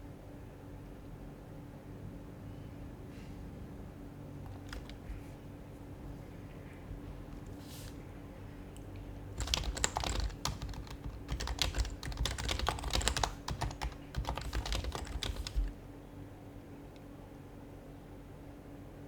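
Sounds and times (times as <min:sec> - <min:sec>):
keyboard typing: 0:04.5 - 0:05.1, 0:09.4 - 0:15.8.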